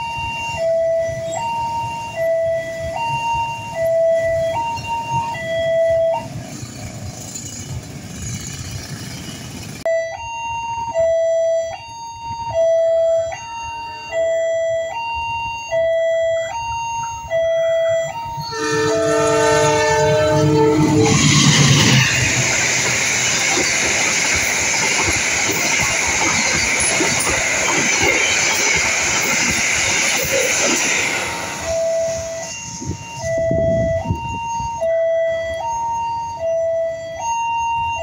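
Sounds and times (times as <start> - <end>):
level crossing alarm two tones: 0.0 - 6.3, 9.9 - 38.0
traffic noise: 0.0 - 38.0
train passing with rail noise: 0.0 - 38.0
locomotive multi-tone horn: 11.6 - 25.6, 26.3 - 37.9.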